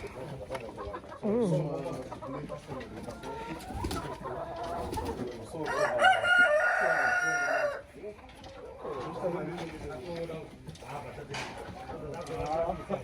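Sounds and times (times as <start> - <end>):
rooster crowing: 5.6 - 7.9.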